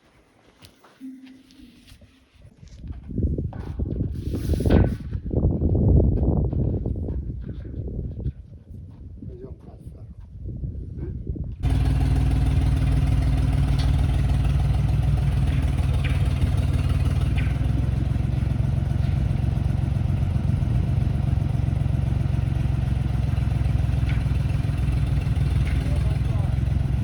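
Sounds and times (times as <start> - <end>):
engine running: 11.6 - 27.0.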